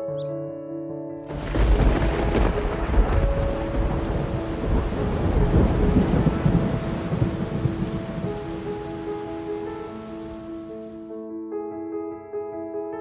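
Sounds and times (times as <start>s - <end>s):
soft sustained music notes: 0.0s - 13.0s
rumbling thunder: 1.3s - 10.4s
heavy rain: 1.3s - 11.0s.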